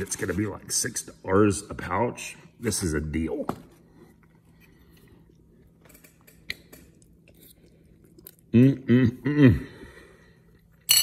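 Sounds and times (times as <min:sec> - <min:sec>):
man chewing food: 0:03.8 - 0:08.7
man humming mmm: 0:08.5 - 0:09.8.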